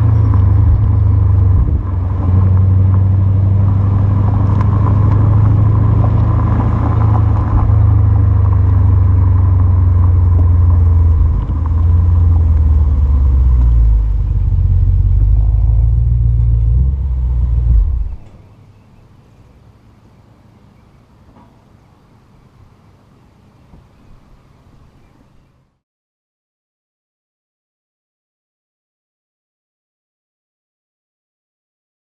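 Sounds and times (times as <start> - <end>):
car exhaust rumble: 0.0 - 18.7.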